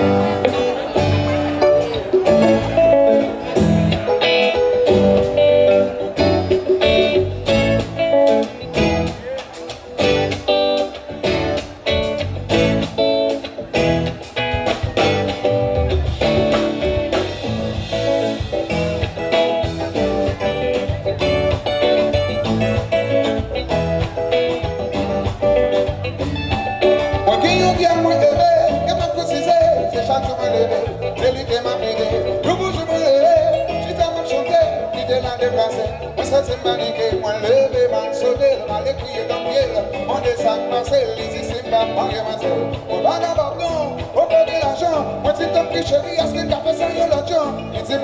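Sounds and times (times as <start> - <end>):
live band music: 0.0 - 48.0
person singing: 26.5 - 48.0.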